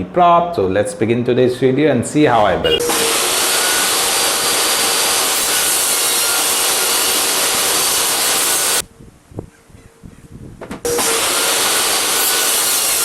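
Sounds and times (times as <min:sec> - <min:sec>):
power tool working wood: 0:02.8 - 0:08.8, 0:10.9 - 0:13.0.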